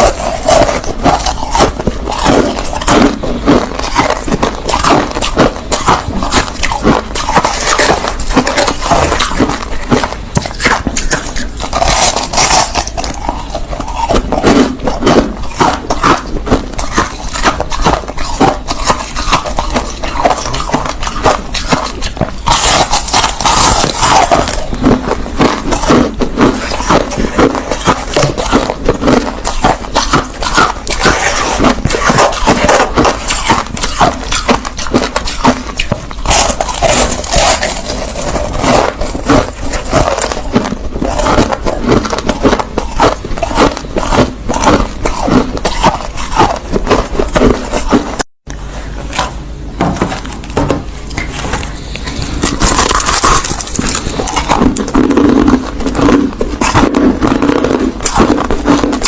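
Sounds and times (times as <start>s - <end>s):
crushed ice being chewed: 0.0s - 59.0s.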